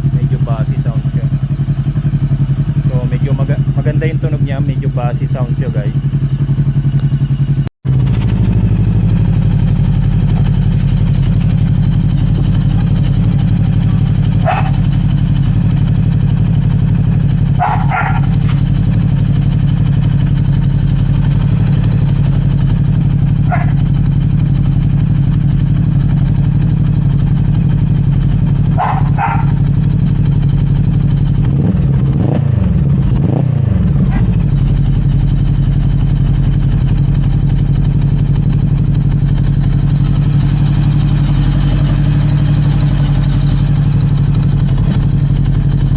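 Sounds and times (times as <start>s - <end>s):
motorcycle engine idling: 0.0s - 45.9s
dog barking: 14.3s - 15.0s, 17.6s - 18.5s, 23.4s - 23.9s, 28.7s - 29.7s, 34.0s - 34.4s.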